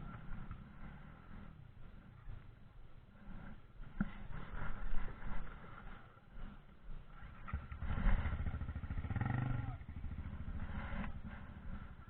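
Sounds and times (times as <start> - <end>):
dirt bike engine revving: 7.5 - 12.0.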